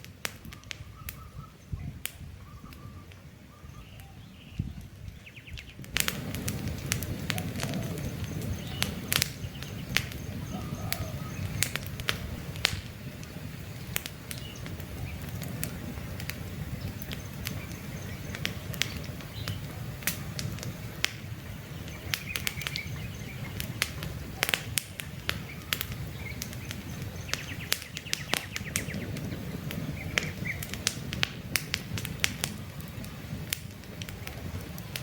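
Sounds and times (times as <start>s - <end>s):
campfire crackling and popping: 0.0s - 35.0s
faint bird chirps: 0.5s - 5.8s, 7.3s - 11.8s, 25.2s - 29.2s.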